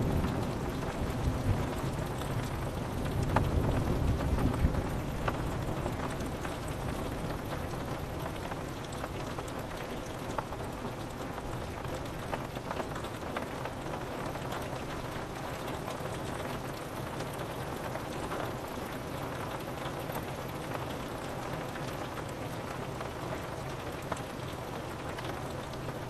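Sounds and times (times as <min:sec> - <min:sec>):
thunder rumbling: 0:00.0 - 0:07.4
rain on window pane: 0:00.0 - 0:26.0.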